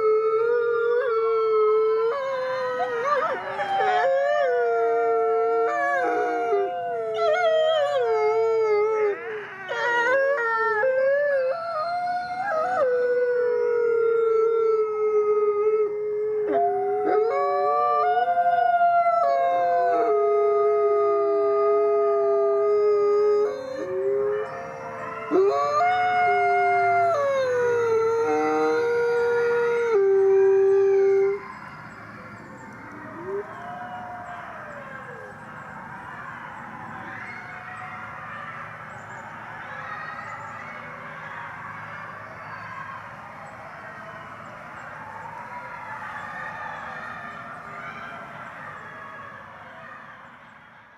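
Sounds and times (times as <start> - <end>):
dogs howling together: 0.0 - 44.4.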